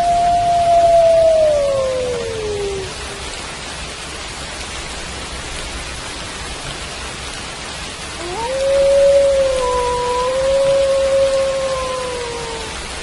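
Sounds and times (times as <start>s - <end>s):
wolf howling: 0.0s - 3.1s, 8.2s - 13.0s
steady rain: 0.0s - 13.0s.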